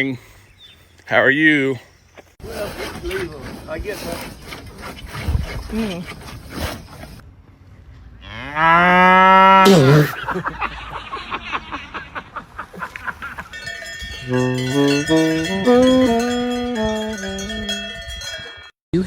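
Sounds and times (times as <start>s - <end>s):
cow mooing: 8.2s - 10.2s, 14.3s - 17.5s
bell-like tune: 13.5s - 18.8s.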